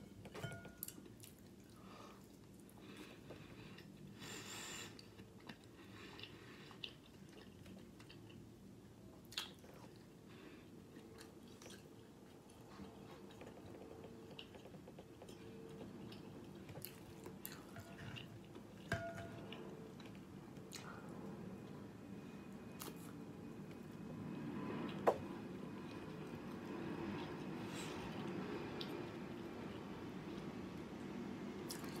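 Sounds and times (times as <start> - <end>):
person chewing food: 0.7 - 22.0.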